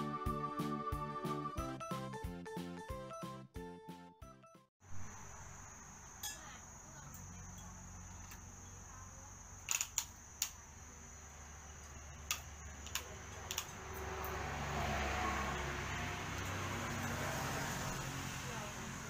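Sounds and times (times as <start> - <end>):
plastic toy clicks and taps: 12.2 - 13.7.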